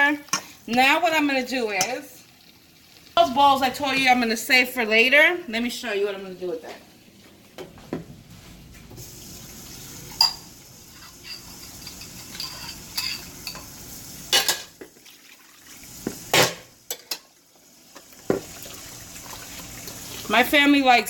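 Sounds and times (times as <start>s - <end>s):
faint hiss of pot cooking: 0.0s - 5.2s, 8.9s - 21.0s
metal spoon clinking on cookware: 10.2s - 14.7s, 16.9s - 17.3s.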